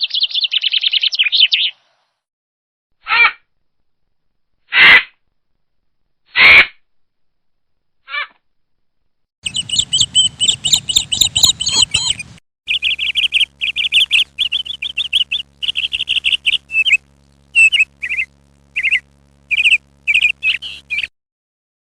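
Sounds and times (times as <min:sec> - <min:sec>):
bird chirping: 0:00.0 - 0:01.9, 0:09.4 - 0:21.1.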